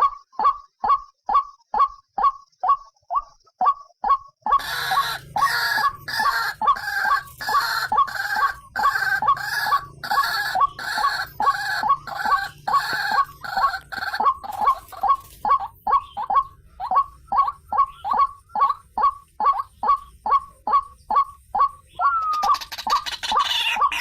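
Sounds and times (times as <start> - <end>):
harsh bird calls: 0.0 - 24.0
waterhen short repeated notes: 0.0 - 24.0.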